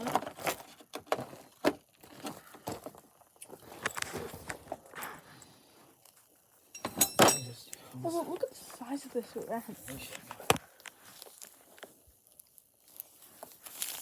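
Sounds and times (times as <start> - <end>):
metal tools clicking and knocking: 6.7 - 7.6.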